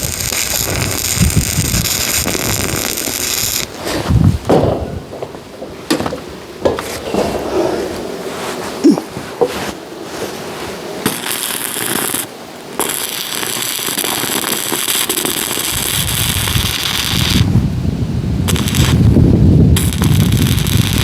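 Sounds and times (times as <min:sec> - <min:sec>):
arc welding crackle and sizzle: 0:00.0 - 0:04.5, 0:09.6 - 0:17.8, 0:18.4 - 0:21.0.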